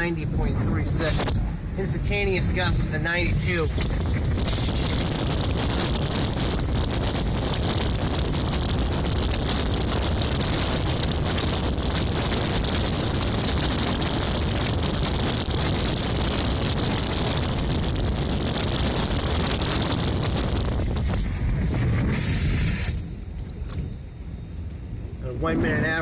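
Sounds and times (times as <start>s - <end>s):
strong wind blowing over microphone: 0.0s - 26.0s.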